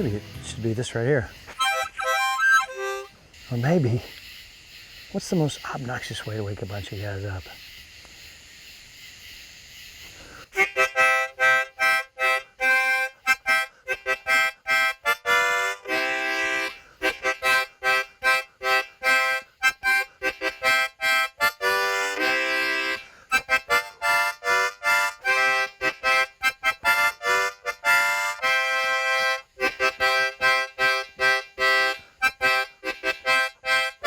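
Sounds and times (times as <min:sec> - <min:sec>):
harmonica playing lively tune: 0:00.0 - 0:03.1, 0:10.6 - 0:34.0.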